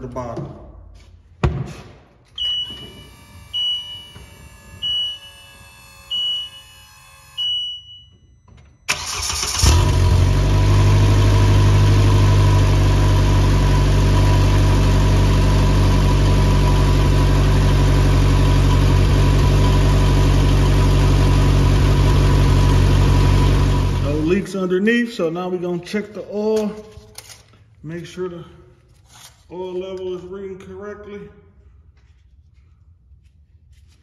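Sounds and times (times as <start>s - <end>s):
electronic beeps: 2.4s - 8.9s
engine cranking and idling: 8.9s - 24.4s.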